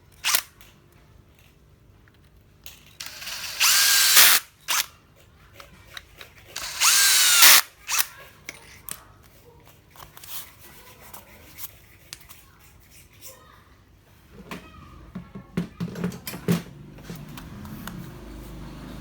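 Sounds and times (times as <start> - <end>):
impact wrench motor whine: 3.0 - 4.8, 6.6 - 8.0.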